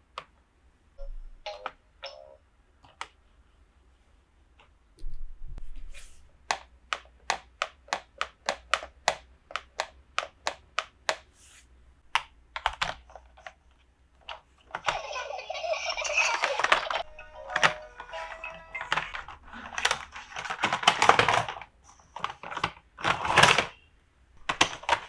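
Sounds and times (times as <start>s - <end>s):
plastic toy parts clicking: 6.5s - 11.2s, 12.2s - 23.8s, 24.4s - 25.0s
rustling crinkle: 14.6s - 23.8s.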